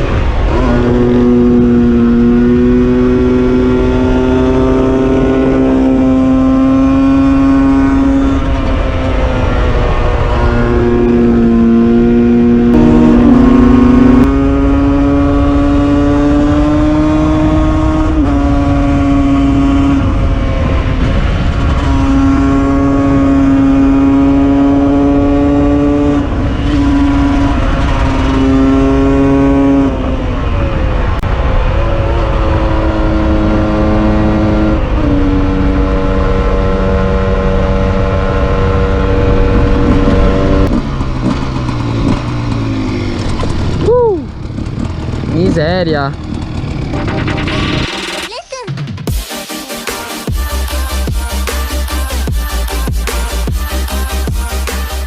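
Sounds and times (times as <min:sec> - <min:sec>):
motorcycle engine under load: 0:12.5 - 0:16.8, 0:38.2 - 0:48.2.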